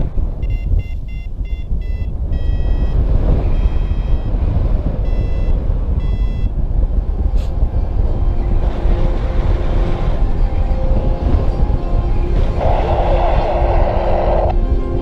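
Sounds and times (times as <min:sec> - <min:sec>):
wind rumble on microphone: 0:00.0 - 0:15.0
variometer beeping: 0:00.4 - 0:06.6, 0:11.5 - 0:14.5.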